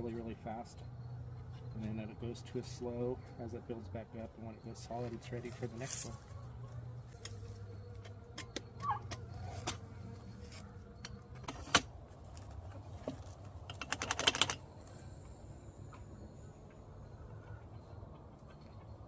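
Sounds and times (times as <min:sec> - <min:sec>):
low steady hum: 0:00.0 - 0:19.0
rattling run of clicks: 0:13.6 - 0:14.7.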